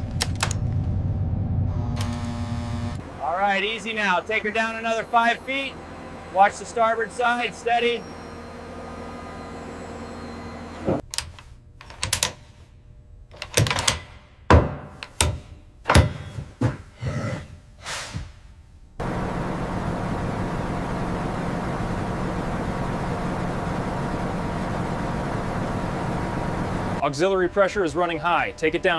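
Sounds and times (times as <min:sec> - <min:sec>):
low machinery hum: 0:00.0 - 0:14.2, 0:18.5 - 0:28.9
loud steady machinery noise: 0:02.0 - 0:11.0, 0:19.0 - 0:28.9
sharp metal clanks and thuds: 0:13.5 - 0:16.9.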